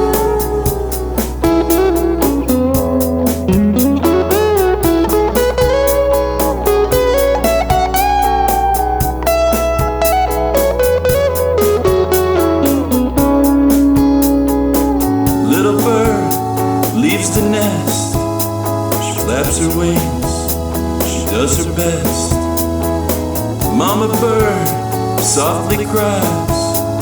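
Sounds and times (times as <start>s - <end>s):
bass line: 0.0s - 27.0s
lead guitar solo: 0.0s - 27.0s
steady drum beat: 0.0s - 27.0s.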